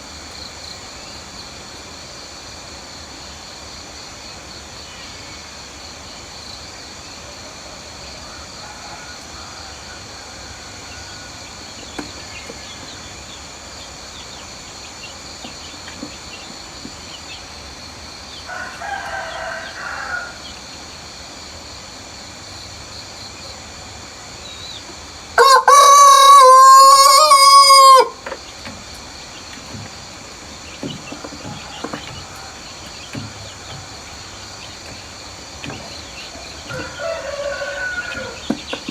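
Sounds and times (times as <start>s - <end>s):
rooster crowing: 8.2s - 11.6s, 18.5s - 20.5s, 25.4s - 28.2s, 36.5s - 38.5s.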